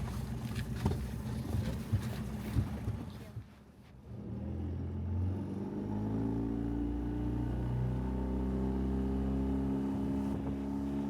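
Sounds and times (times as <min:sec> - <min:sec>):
outboard motor running: 0:00.0 - 0:03.4.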